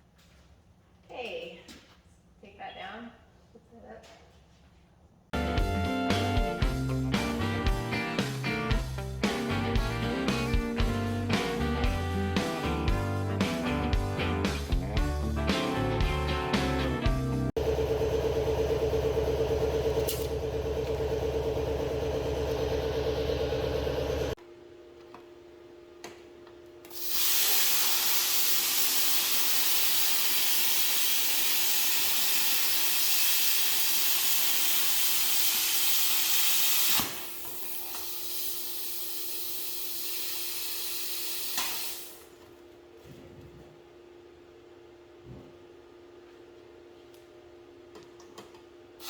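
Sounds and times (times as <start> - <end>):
background music: 5.4 - 17.5.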